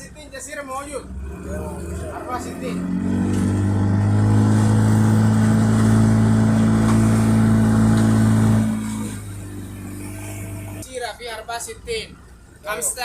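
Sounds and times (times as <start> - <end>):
boat motor drone: 1.0 - 10.8.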